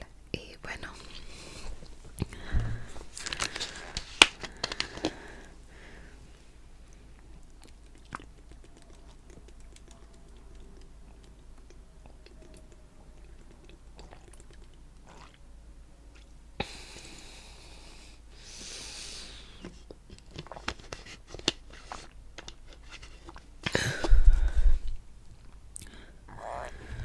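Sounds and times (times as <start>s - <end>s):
heavy breathing: 1.0s - 6.4s, 23.8s - 25.0s, 25.8s - 27.0s
wet chewing: 6.9s - 15.4s, 19.6s - 27.0s.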